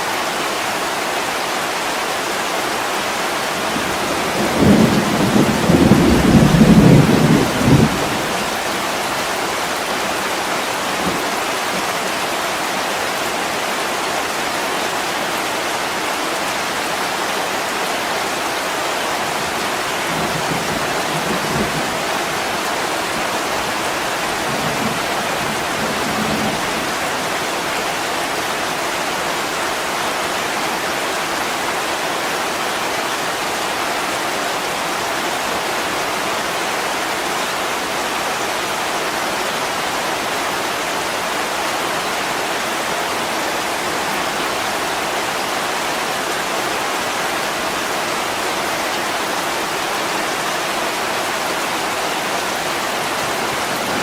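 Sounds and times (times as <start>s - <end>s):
heavy rain on a window: 0.0s - 54.0s
thunder rumbling: 3.8s - 8.9s, 20.0s - 22.5s, 23.6s - 27.4s.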